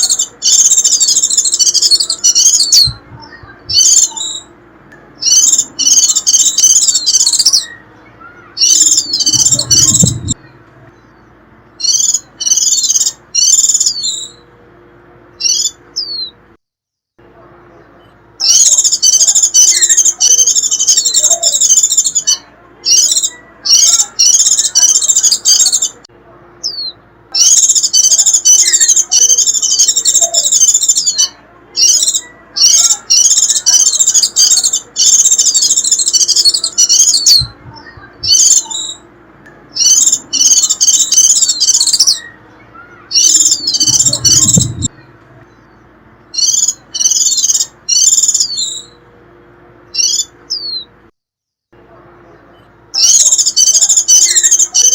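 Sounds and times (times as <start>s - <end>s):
white-eye twittering song: 0.0s - 14.6s, 15.3s - 16.4s, 17.7s - 49.1s, 49.9s - 51.0s, 52.2s - 54.9s.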